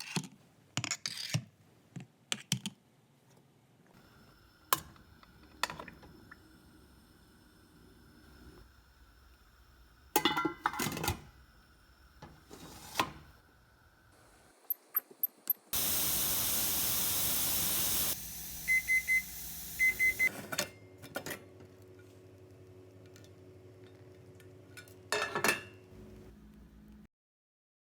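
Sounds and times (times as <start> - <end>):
loud hiss: 15.7 - 20.3
short electronic beeps: 18.7 - 20.3.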